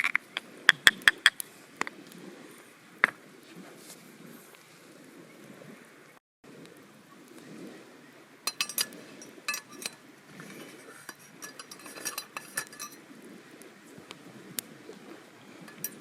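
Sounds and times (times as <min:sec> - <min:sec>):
metal utensils clinking: 0:08.5 - 0:13.0, 0:15.7 - 0:16.0.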